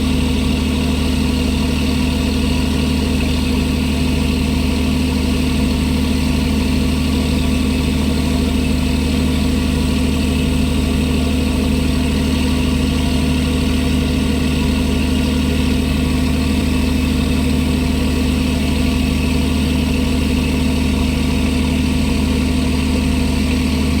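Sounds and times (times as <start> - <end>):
boat engine humming: 0.0 - 24.0.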